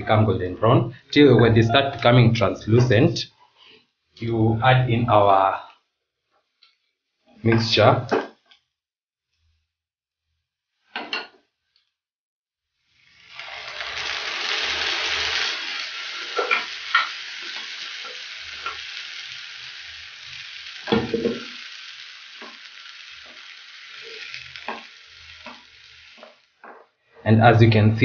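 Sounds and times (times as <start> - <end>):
sizzling in a frying pan: 12.7 - 27.1
wooden spoon knocking on pan: 20.9 - 21.5.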